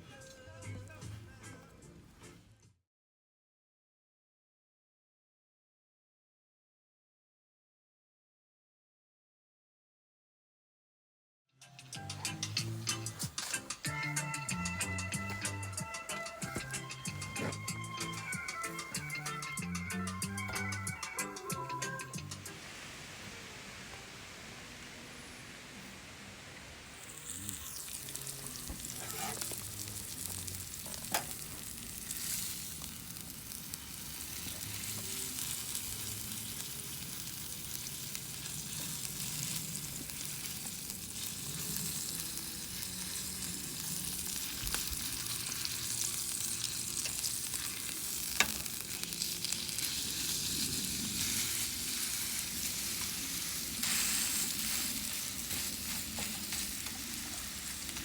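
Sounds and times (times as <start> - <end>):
food sizzling in a pan: 12.0 - 58.0
sharp pops of frying: 27.2 - 36.6, 43.0 - 50.4.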